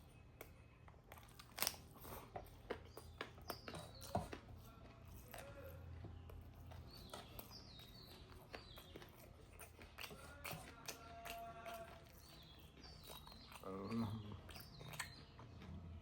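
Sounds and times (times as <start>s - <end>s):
person chewing and crunching: 0.0s - 16.0s
mouth clicks and smacks: 7.0s - 15.7s.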